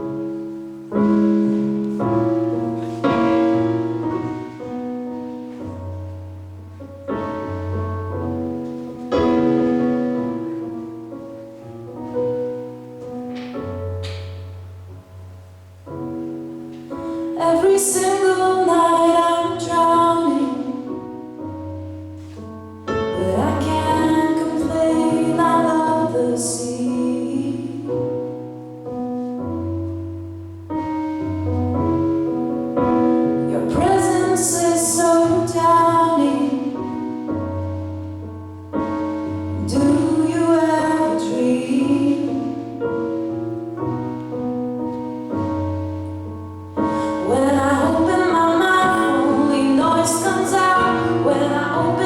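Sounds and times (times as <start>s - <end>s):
piano chords: 0.0s - 52.0s
woman singing pop ballad: 17.4s - 20.9s, 23.2s - 28.0s, 33.4s - 36.8s, 39.6s - 42.6s, 47.1s - 52.0s.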